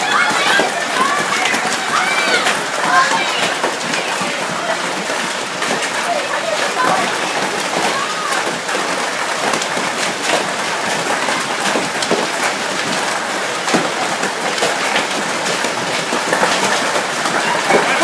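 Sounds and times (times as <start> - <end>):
hail clattering on hard surfaces: 0.0 - 18.0.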